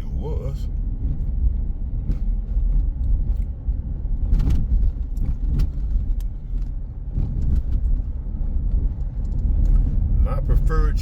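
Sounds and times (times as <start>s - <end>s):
vehicle road and engine rumble: 0.0s - 11.0s
light clicks and rattles: 4.2s - 9.9s.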